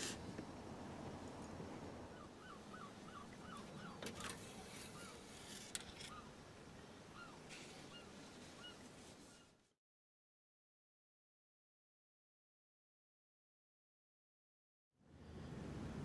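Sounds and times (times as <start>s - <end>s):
low outdoor background: 0.0s - 9.8s.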